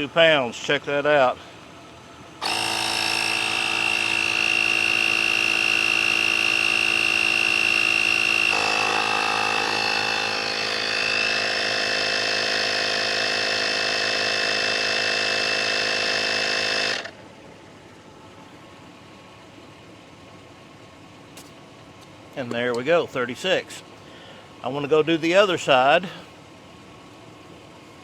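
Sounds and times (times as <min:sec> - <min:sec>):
air compressor whining: 0:00.0 - 0:19.5.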